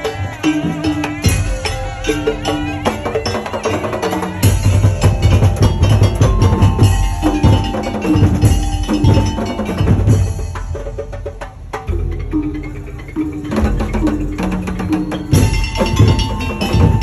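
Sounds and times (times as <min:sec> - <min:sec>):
held melodic notes: 0:00.0 - 0:10.8, 0:11.8 - 0:17.0
big drums pounding fast rhythm: 0:00.0 - 0:17.0
deep drum booms: 0:04.4 - 0:17.0.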